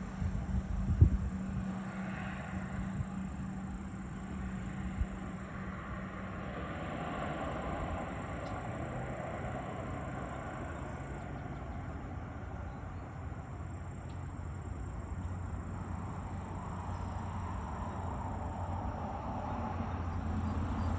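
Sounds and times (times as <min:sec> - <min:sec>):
turboprop engine drone: 0:00.0 - 0:20.9.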